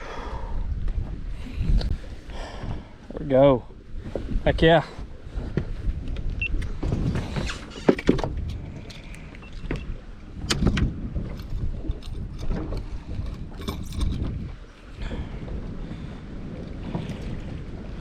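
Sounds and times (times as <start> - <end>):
knocks and clatter on boat deck: 4.0 - 14.6, 16.7 - 17.6.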